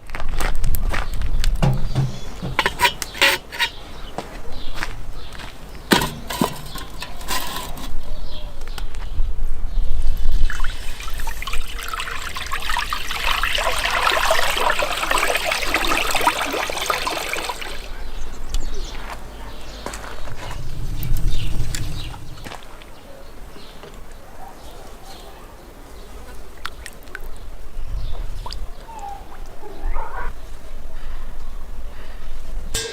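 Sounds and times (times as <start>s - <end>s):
kitchen utensils clinking: 1.6s - 4.1s, 5.9s - 8.0s
liquid pouring into vessel: 10.4s - 17.9s.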